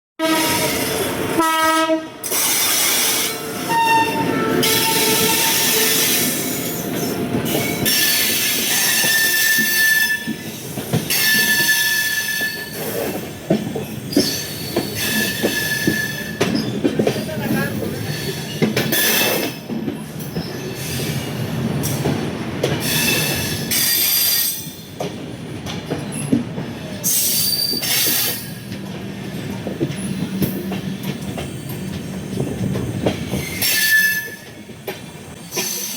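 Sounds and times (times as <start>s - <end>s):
train wheels squealing: 2.3s - 13.2s, 13.8s - 16.9s, 18.0s - 19.6s, 22.8s - 25.0s, 27.0s - 28.7s, 33.2s - 35.9s.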